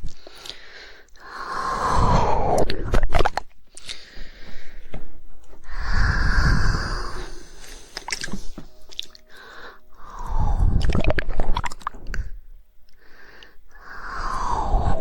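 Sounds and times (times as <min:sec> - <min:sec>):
wet tongue clicks and smacking: 0:03.0 - 0:04.0, 0:08.0 - 0:09.3, 0:10.8 - 0:12.2.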